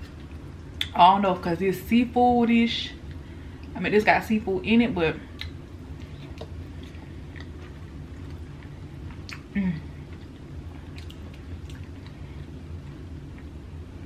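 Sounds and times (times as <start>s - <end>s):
mouth chewing: 5.4s - 12.5s.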